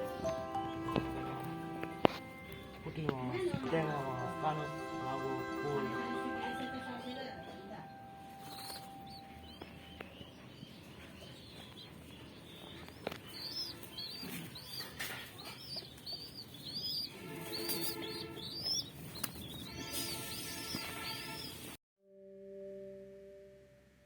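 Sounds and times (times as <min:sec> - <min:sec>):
steady chord of held tones: 0:00.0 - 0:09.7
small bird chirping: 0:07.0 - 0:21.8.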